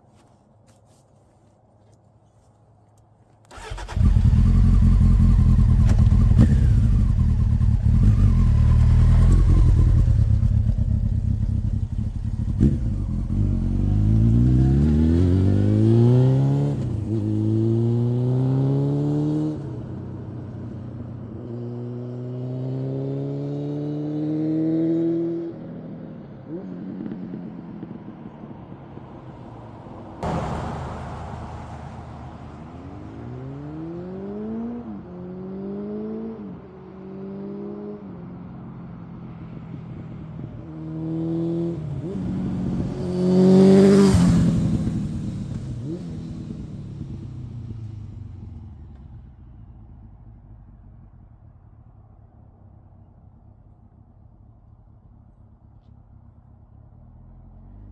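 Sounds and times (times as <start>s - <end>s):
motorcycle engine accelerating: 3.5s - 25.6s, 39.3s - 51.5s.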